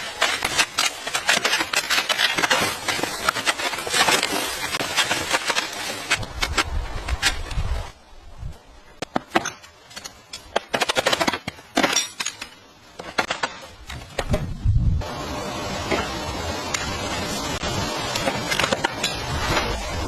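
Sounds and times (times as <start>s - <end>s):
material cracking and breaking: 0.0s - 7.8s
steady hiss-like noise: 0.0s - 10.8s.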